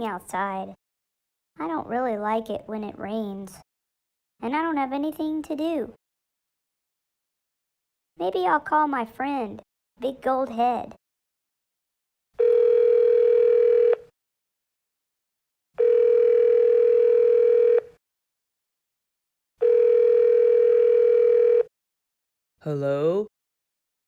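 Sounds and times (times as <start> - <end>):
telephone ringback tone beeps: 12.4 - 14.0, 15.8 - 17.9, 19.6 - 21.7.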